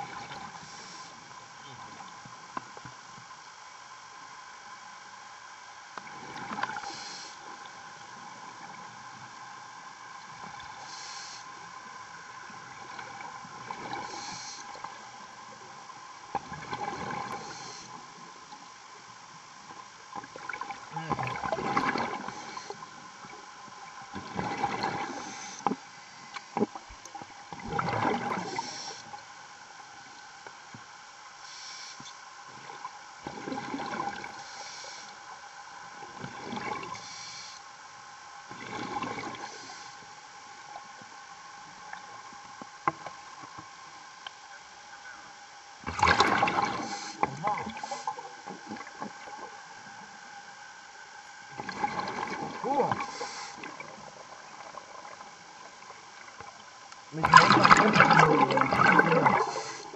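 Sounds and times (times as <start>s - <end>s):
diver breathing with bubbles: 27.6s - 29.2s, 45.9s - 49.0s, 51.6s - 55.2s, 57.1s - 59.9s.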